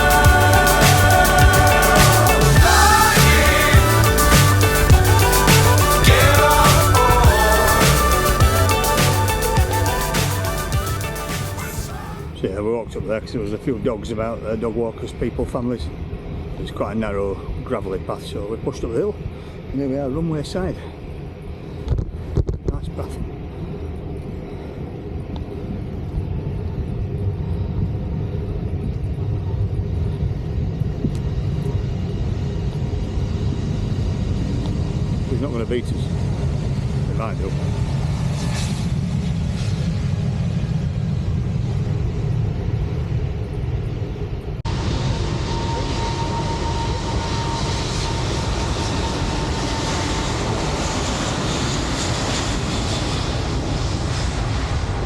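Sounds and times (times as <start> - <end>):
thin steady whine: 0.0 - 53.2
jet engines rumbling: 0.0 - 55.0
wind rumble on microphone: 21.2 - 45.0.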